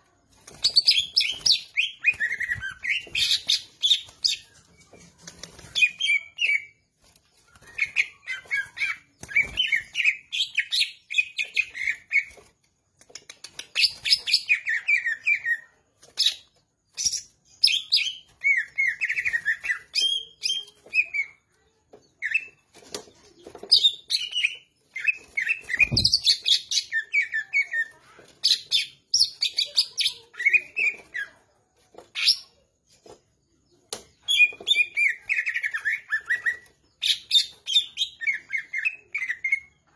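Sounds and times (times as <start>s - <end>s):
bird singing chirps and whistles: 7.4s - 12.3s, 23.7s - 27.8s, 34.2s - 39.8s.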